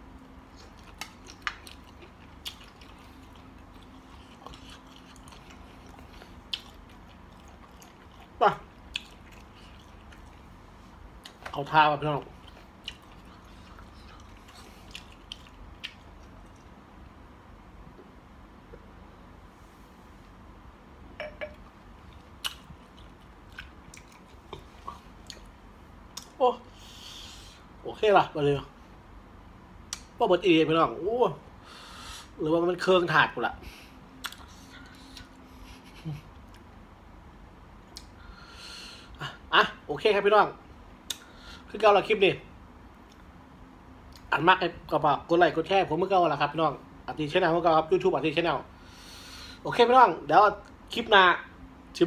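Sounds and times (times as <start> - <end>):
low steady hum: 0.0 - 52.0
person chewing wetly: 0.4 - 10.6, 12.3 - 16.8, 22.0 - 26.3, 34.2 - 35.4.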